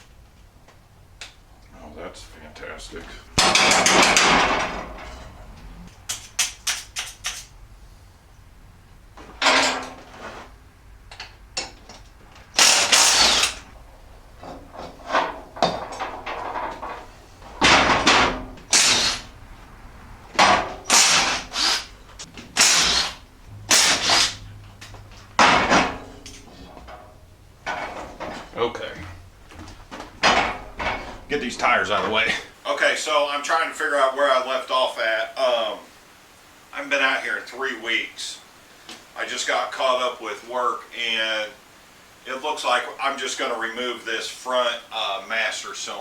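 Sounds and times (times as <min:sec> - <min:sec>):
impact wrench bursts: 0:03.1 - 0:05.2, 0:05.9 - 0:08.0, 0:11.0 - 0:13.8, 0:14.4 - 0:19.6, 0:20.2 - 0:29.3
small clicks and knocks: 0:03.4 - 0:07.6.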